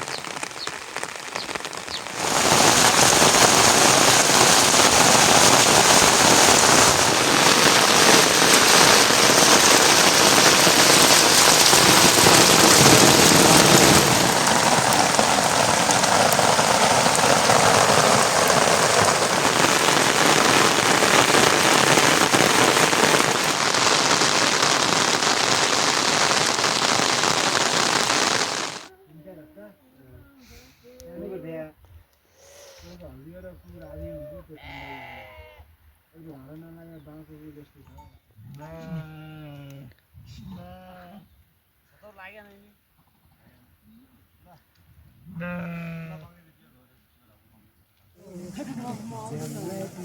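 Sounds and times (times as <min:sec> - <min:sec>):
heavy rain falling: 0:00.0 - 0:28.9, 0:48.2 - 0:50.0.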